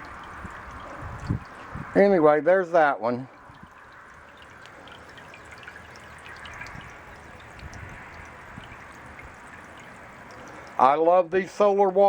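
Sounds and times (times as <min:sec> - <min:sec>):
fountain water splashing: 0:00.0 - 0:11.8
droplet ticks: 0:03.4 - 0:10.8.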